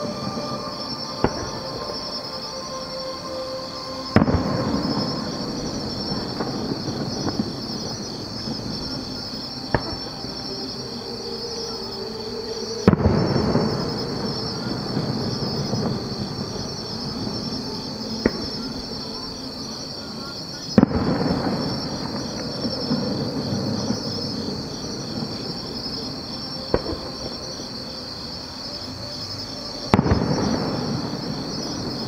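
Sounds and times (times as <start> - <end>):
insects chirping: 0.0 - 32.0
distant firework booms: 4.2 - 10.4, 12.8 - 17.6, 20.8 - 26.1, 26.7 - 27.4, 29.9 - 32.0
faint firework cracks: 9.7 - 10.2, 12.8 - 14.3, 18.2 - 18.6, 20.8 - 24.4, 26.7 - 27.4, 29.9 - 32.0.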